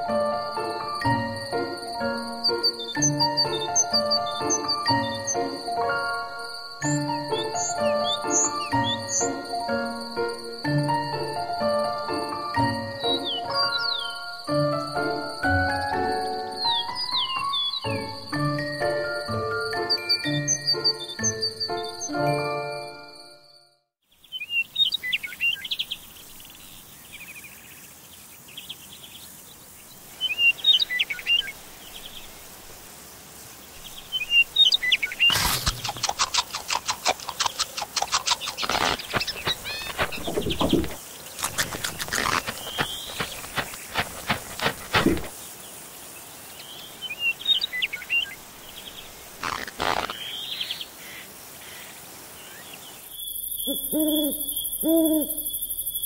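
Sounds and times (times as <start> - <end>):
birdsong chirps: 0.0 - 56.0
crunching chewing clicks: 35.3 - 45.3, 49.4 - 50.3
owl hooting: 53.2 - 56.0.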